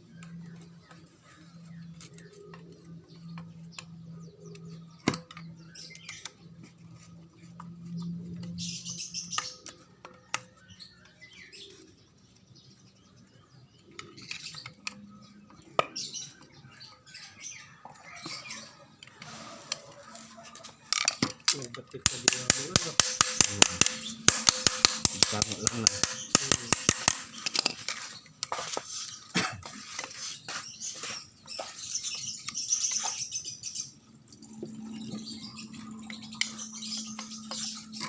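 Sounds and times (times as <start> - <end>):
hand tools clicking and knocking: 20.5 - 30.4.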